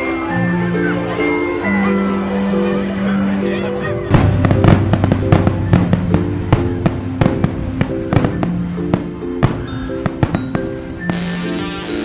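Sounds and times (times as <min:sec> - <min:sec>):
melodic music: 0:00.0 - 0:12.0
fireworks banging and crackling: 0:04.1 - 0:12.0.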